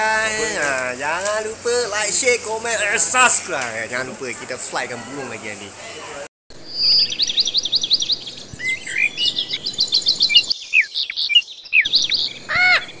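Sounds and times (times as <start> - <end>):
birds chirping: 5.0 - 13.0
downward-sliding bird calls: 6.8 - 13.0
harsh bird squawk: 10.2 - 13.0.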